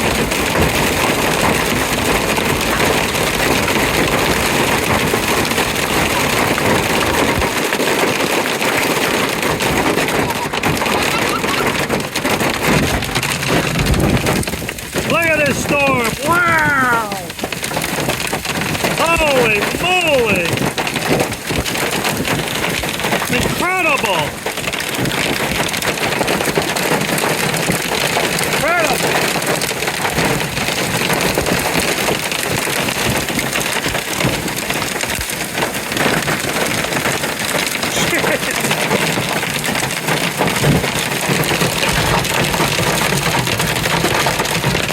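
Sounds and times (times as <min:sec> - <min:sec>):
hailstones clicking: 0:00.0 - 0:44.9
heavy rain hiss: 0:11.7 - 0:44.9.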